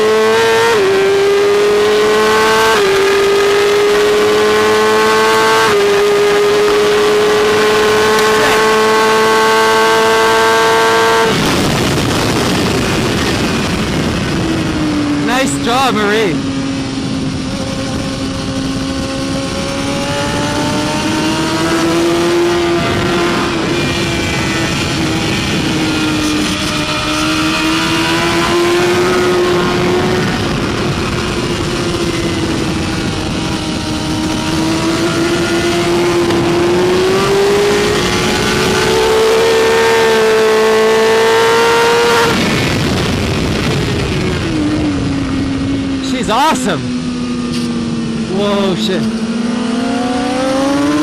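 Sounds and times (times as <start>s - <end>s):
motorcycle engine at high revs: 0.0s - 51.0s
wind rush: 0.0s - 51.0s.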